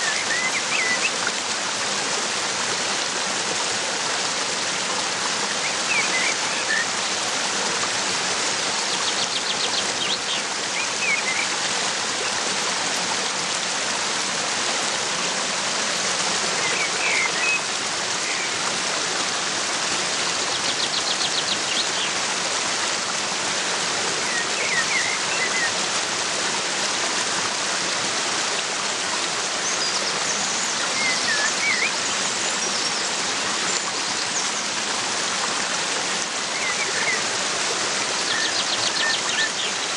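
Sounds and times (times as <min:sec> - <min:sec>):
waterfall rushing: 0:00.0 - 0:39.9
small birds chirping: 0:05.5 - 0:06.9, 0:36.4 - 0:37.3, 0:38.2 - 0:39.9.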